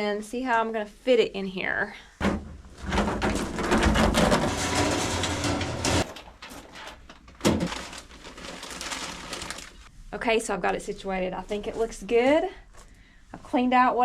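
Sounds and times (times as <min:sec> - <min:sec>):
bins and gear scraping: 0:02.2 - 0:07.1.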